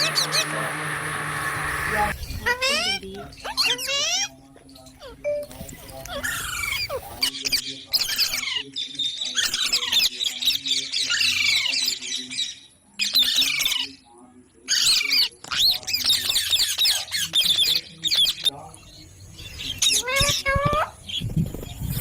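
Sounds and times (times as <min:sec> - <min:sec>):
parrots squawking: 0:00.0 - 0:04.3, 0:05.0 - 0:08.6.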